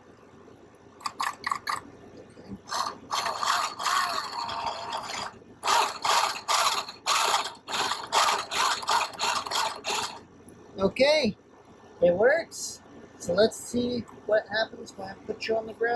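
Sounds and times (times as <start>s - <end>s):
toy truck electric motor whirring: 1.0s - 1.8s, 2.6s - 10.2s.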